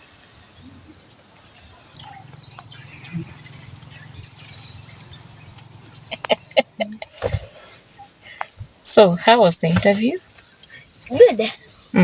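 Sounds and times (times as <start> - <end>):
small birds chirping: 0.2 - 12.0
steady low hum: 1.7 - 8.8.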